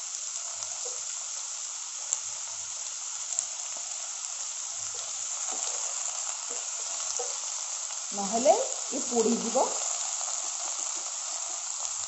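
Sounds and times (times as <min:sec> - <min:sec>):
vegetables sizzling in oil: 0:00.0 - 0:12.0
wooden spatula knocking pan: 0:05.5 - 0:07.5.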